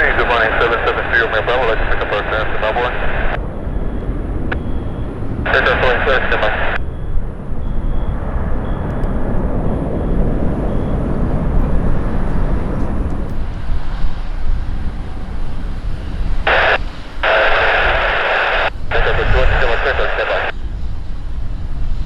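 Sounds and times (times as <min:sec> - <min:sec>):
radio bursts: 0:00.0 - 0:03.4, 0:05.5 - 0:06.9, 0:16.4 - 0:20.5
airplane engine rumble: 0:00.0 - 0:22.0.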